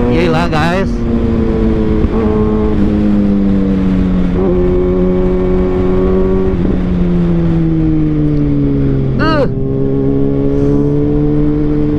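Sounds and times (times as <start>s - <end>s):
low wind rush: 0.0s - 11.9s
motorcycle engine running hard: 0.0s - 11.9s.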